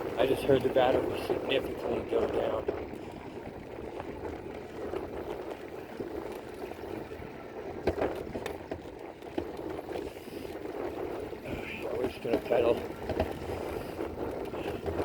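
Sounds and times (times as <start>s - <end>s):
e-bike rolling noise: 0.0s - 15.0s
wind on microphone: 0.0s - 15.0s.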